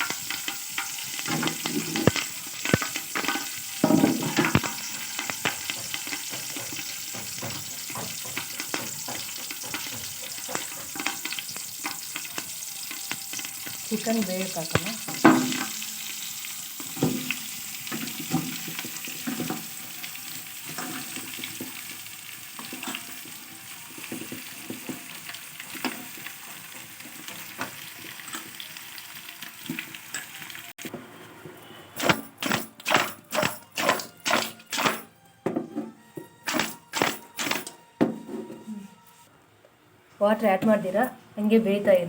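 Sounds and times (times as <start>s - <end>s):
chicken sizzling in oil: 0.0s - 30.9s.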